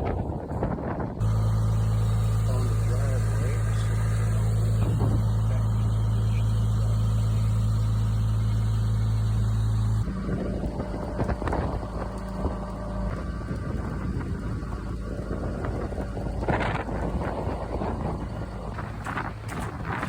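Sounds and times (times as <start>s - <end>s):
wind on microphone: 0.0s - 1.2s, 10.0s - 20.0s
truck engine humming: 1.2s - 20.0s.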